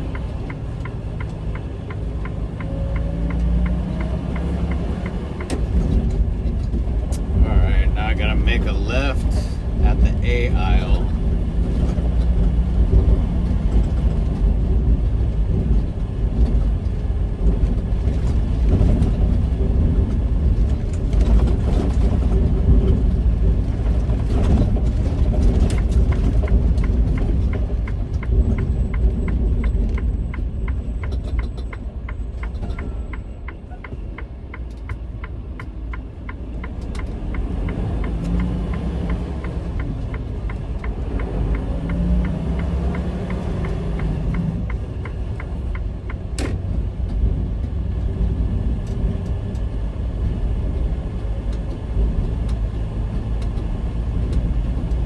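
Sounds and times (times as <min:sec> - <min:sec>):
regular ticking clicks: 0:00.0 - 0:14.6, 0:20.9 - 0:47.8
diesel truck engine: 0:00.0 - 0:55.0
road rumble: 0:00.0 - 0:55.0.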